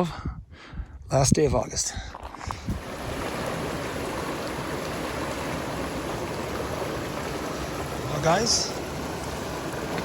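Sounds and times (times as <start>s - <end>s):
running water rushing: 2.2s - 10.0s.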